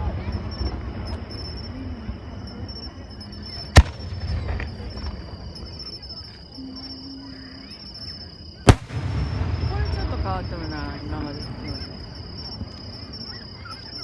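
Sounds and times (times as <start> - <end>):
insects chirring: 0.0 - 14.0
loud sharp firework bang: 3.8 - 5.2, 8.7 - 11.4.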